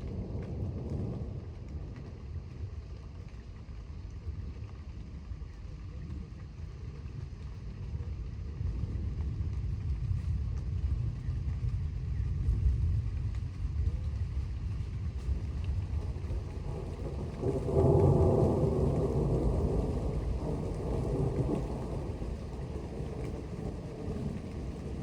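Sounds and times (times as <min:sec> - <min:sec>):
thunder rumbling: 0:00.0 - 0:25.0.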